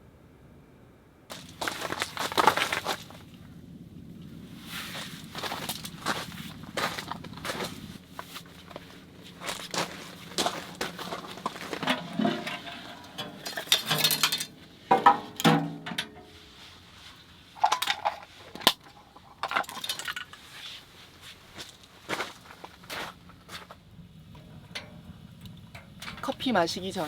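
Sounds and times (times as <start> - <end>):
camping gear clinking: 1.3 - 3.3, 4.7 - 23.6
rustling: 1.3 - 3.4, 4.3 - 15.4, 16.2 - 23.8.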